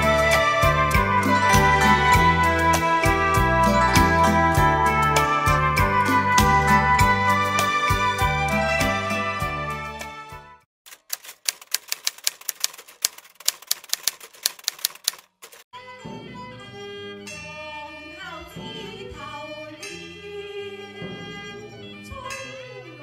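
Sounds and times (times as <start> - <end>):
opera music with singing: 0.0 - 5.0, 17.3 - 23.0
background music: 0.0 - 10.6, 15.8 - 23.0
typewriter keys clicking: 10.9 - 15.6.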